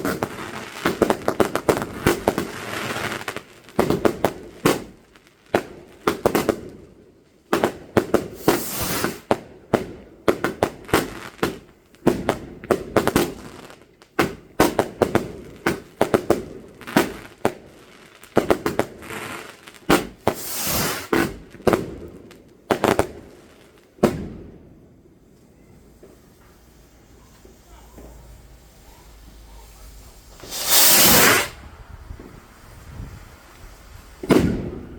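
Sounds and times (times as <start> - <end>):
fireworks bangs: 0.0 - 5.0, 7.5 - 34.9
hissing crackling fireworks bursts: 0.0 - 34.9.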